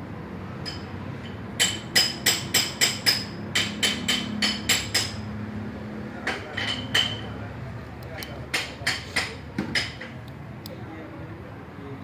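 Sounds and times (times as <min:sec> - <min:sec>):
hammer tapping on metal: 0:01.6 - 0:05.2, 0:08.2 - 0:10.2.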